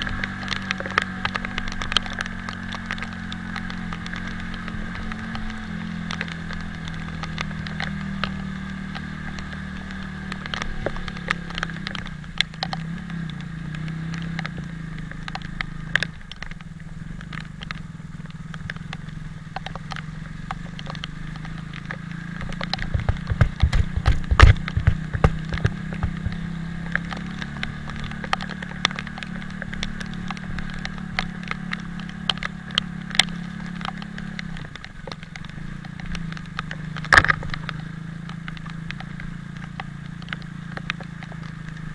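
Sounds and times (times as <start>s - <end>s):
crackling clicks: 0.0s - 41.9s
motorcycle engine running: 0.0s - 41.9s
heavy low thumps: 22.8s - 26.6s.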